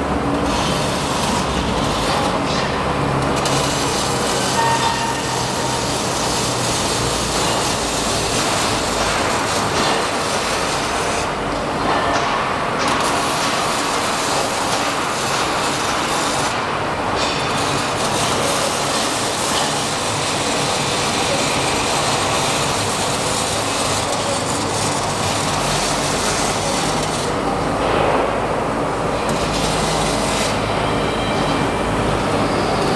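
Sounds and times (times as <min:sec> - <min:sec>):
welding arcs hissing and crackling: 0:00.0 - 0:11.6, 0:12.8 - 0:27.9, 0:29.2 - 0:30.7.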